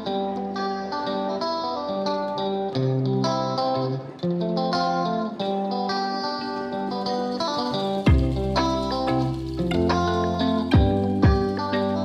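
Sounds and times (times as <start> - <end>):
plucked guitar melody: 0.0 - 12.0.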